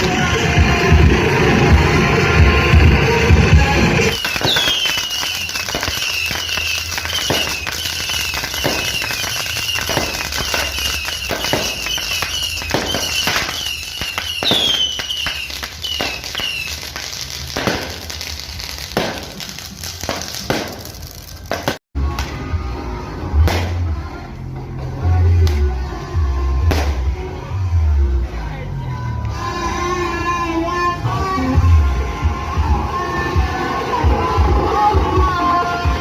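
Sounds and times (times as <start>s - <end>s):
fireworks popping and crackling: 0.0s - 22.3s, 23.5s - 23.8s, 26.7s - 27.0s
falling firework whistles: 4.0s - 21.8s.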